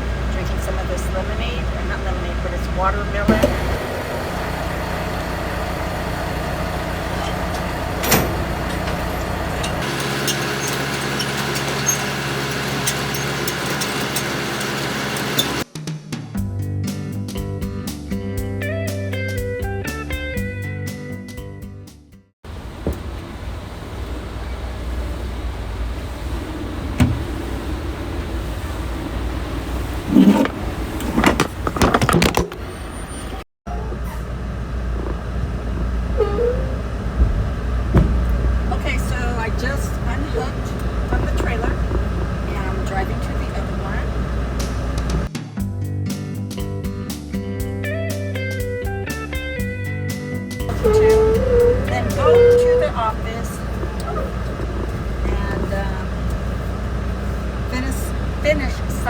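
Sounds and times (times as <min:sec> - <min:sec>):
air conditioning blowing: 0:00.0 - 0:15.6, 0:22.4 - 0:45.3, 0:50.7 - 0:59.0
truck engine idling: 0:00.0 - 0:15.6, 0:22.4 - 0:45.3, 0:50.7 - 0:59.0
knocks and clatters: 0:30.1 - 0:32.7.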